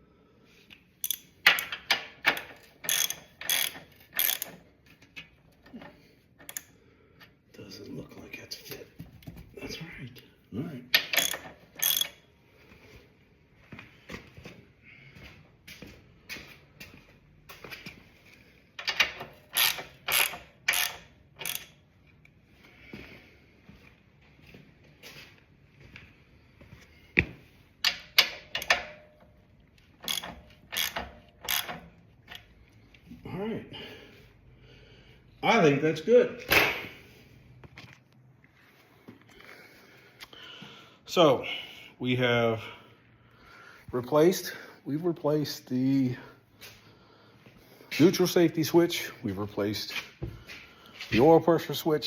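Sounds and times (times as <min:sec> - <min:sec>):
ratchet wrench clicking: 0:01.0 - 0:04.6, 0:06.4 - 0:06.7, 0:11.0 - 0:12.2, 0:18.8 - 0:21.8, 0:30.0 - 0:32.5.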